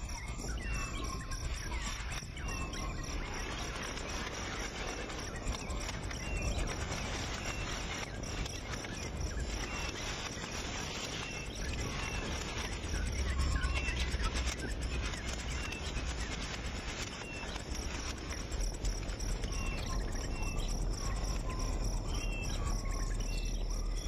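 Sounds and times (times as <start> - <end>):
insect-like hiss: 0.0 - 24.0.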